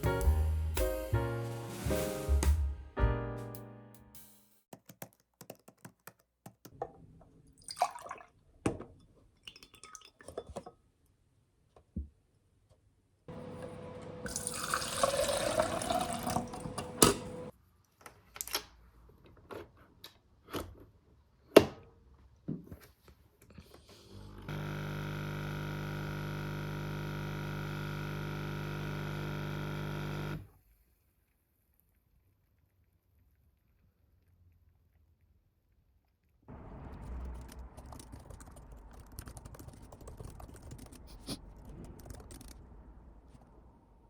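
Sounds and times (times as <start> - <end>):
running water: 7.6 - 8.3, 14.3 - 17.5
electric appliance hum: 13.3 - 17.5, 24.0 - 30.6.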